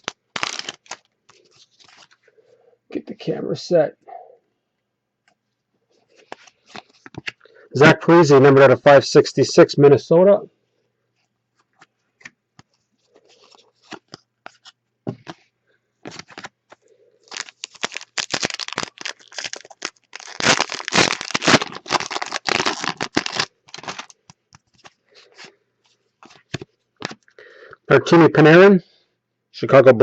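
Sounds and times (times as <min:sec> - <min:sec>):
paper and foil rustling: 0:00.0 - 0:02.2, 0:16.0 - 0:25.5
wrapper crinkling and tearing: 0:00.0 - 0:02.2, 0:16.0 - 0:25.5.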